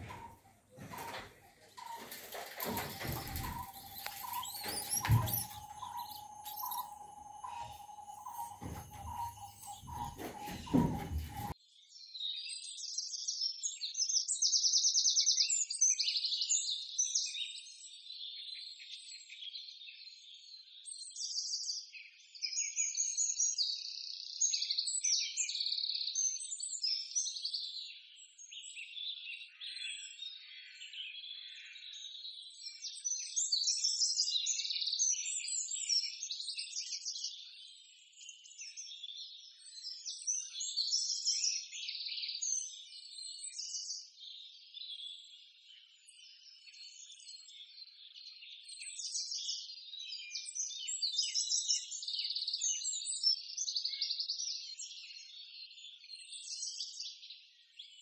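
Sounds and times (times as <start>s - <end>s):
birds chirping and chattering: 0.0s - 11.6s.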